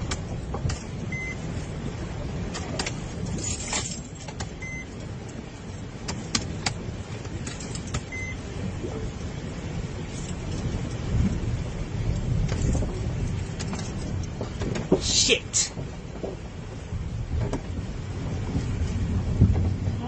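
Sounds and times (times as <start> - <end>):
vehicle engine rumble: 0.0 - 20.0
sharp clicks and knocks: 2.5 - 3.0, 6.0 - 8.2, 12.4 - 15.1.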